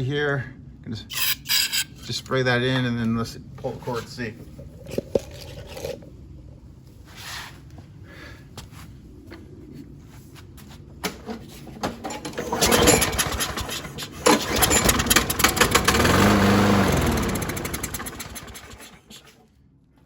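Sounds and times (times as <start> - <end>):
mower engine starting and revving: 12.2 - 19.3.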